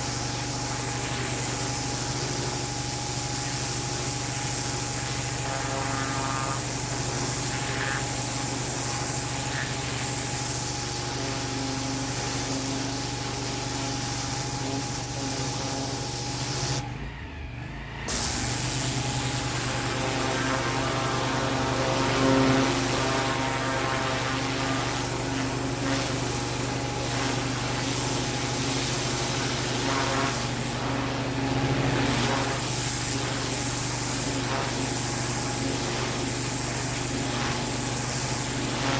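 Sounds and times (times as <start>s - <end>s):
high-pressure water jet hissing: 0.0s - 16.8s, 18.1s - 38.9s
machine hum: 0.0s - 37.5s.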